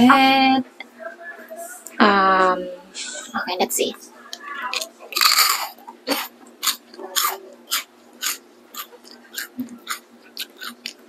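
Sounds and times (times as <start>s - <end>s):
person chewing crunchy snack: 4.7s - 11.0s.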